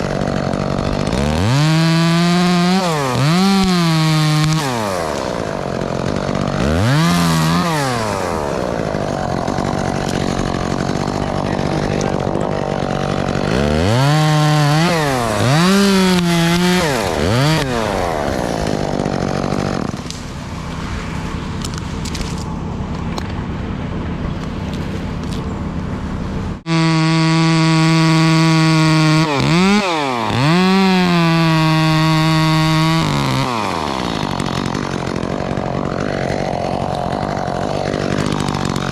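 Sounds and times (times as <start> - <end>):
chainsaw revving while cutting: 0.0 - 20.8, 26.6 - 38.9.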